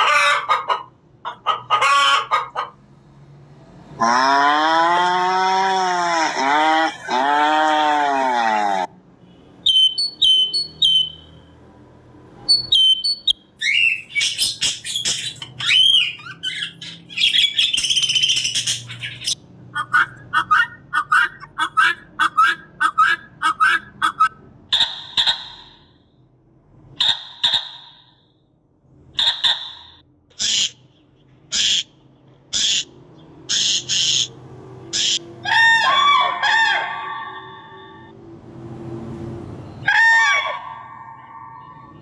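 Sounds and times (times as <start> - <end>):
guineafowl harsh repeated calls: 0.0 - 2.7, 4.0 - 8.9, 18.6 - 25.8, 35.0 - 38.1, 39.8 - 42.0
whistled bird notes: 9.6 - 11.4, 12.5 - 19.4
budgerigar chattering warble: 14.1 - 25.8, 31.5 - 31.9, 32.5 - 32.9, 33.5 - 34.3.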